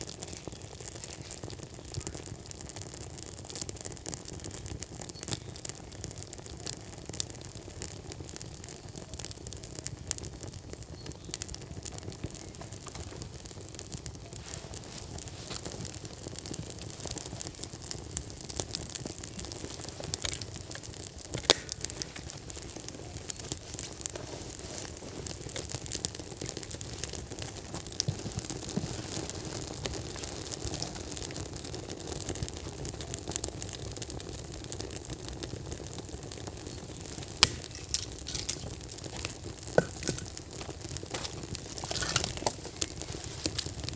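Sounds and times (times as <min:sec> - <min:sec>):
firewood crackling: 0:00.0 - 0:43.9
low steady fire rush: 0:14.2 - 0:32.7, 0:35.8 - 0:43.9
sharp fire pop: 0:19.4 - 0:26.0, 0:36.6 - 0:43.9.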